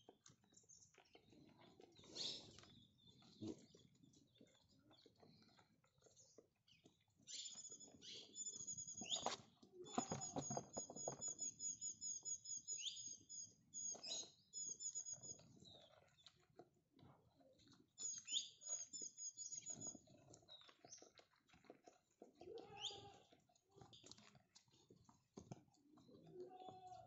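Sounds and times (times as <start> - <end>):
small bird chirping: 0.0 - 16.4, 17.3 - 23.2
goats scuffling and butting: 19.8 - 27.0.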